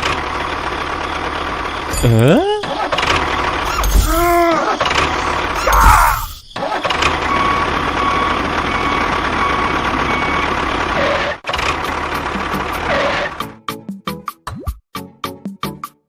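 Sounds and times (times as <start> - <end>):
heavy vehicle engine running: 0.0 - 5.6, 6.6 - 13.4
reversing alarm beeping: 2.0 - 10.8.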